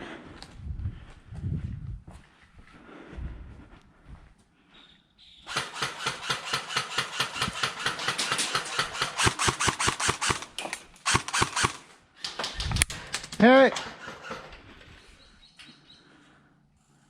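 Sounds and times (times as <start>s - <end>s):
airsoft rifle full-auto firing: 5.5s - 11.9s.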